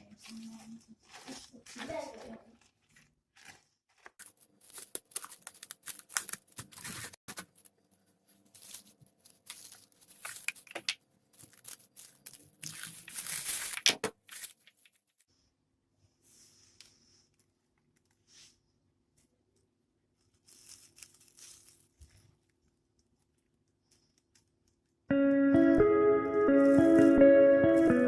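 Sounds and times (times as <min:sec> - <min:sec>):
rustling and crinkling: 0:00.0 - 0:15.3, 0:16.2 - 0:25.0
tearing: 0:20.4 - 0:22.4.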